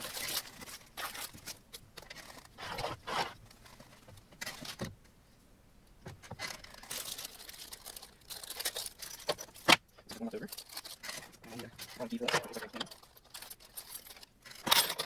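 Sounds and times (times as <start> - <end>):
plastic bags crinkling: 0.0 - 4.9, 6.3 - 15.0.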